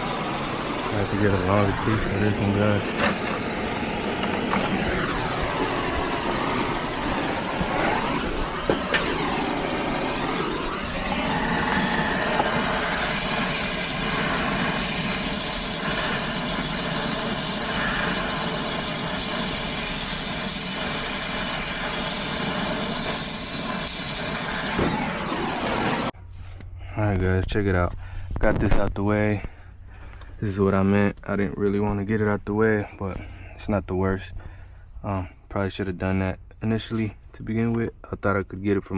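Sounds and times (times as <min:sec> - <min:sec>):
torch flame rushing: 0:00.0 - 0:26.2.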